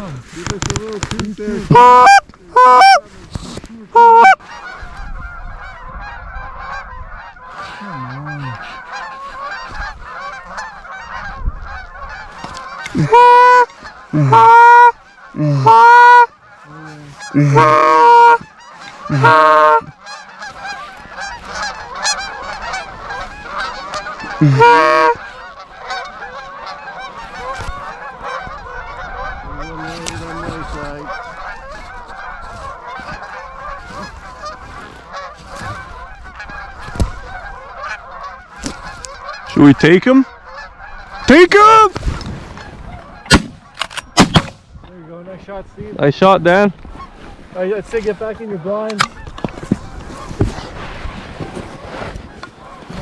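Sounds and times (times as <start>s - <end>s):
flock of geese honking: 0.4s - 44.2s, 46.0s - 53.0s
goose call honks: 1.7s - 3.0s, 3.9s - 5.0s, 5.6s - 36.7s.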